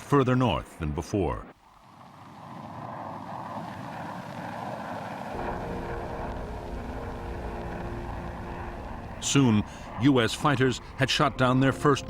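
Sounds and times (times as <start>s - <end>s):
aircraft engine rushing: 1.9s - 12.0s
low engine rumble: 5.4s - 12.0s.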